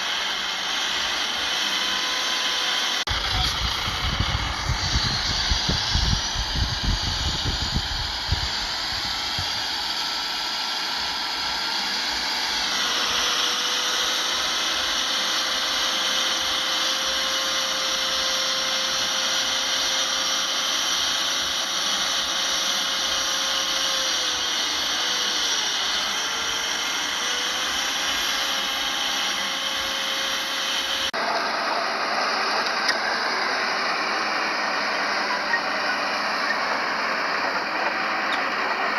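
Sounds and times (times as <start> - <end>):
bulldozer diesel engine: 0.0 - 38.9
high-pitched machine whine: 0.0 - 38.9
low rumbling: 3.1 - 9.8.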